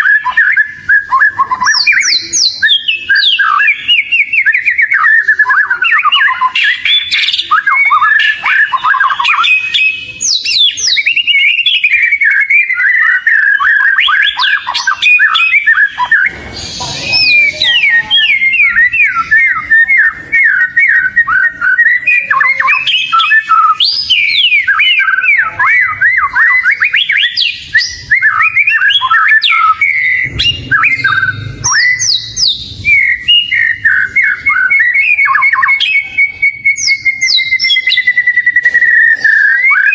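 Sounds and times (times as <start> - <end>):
magpie-robin singing: 0.0 - 39.9
low rumble: 30.3 - 32.3.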